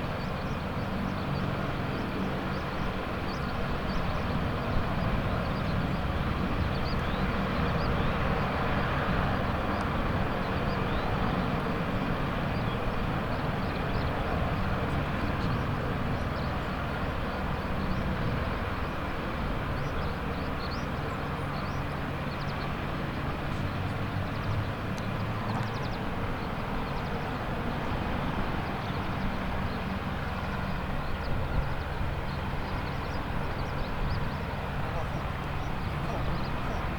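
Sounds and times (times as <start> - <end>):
helicopter turbine and rotor beat: 0.0 - 36.9.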